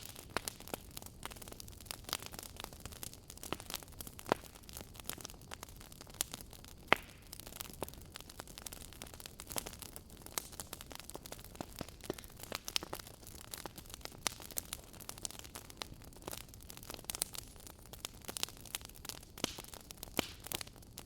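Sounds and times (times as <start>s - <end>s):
fireplace crackling: 0.0s - 21.0s.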